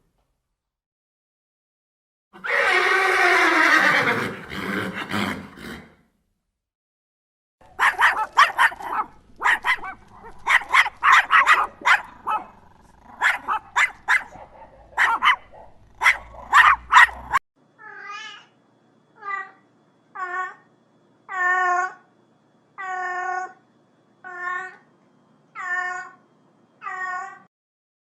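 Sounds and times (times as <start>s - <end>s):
dog barking: 7.7s - 17.4s
cat meowing: 25.6s - 26.2s, 26.8s - 27.5s.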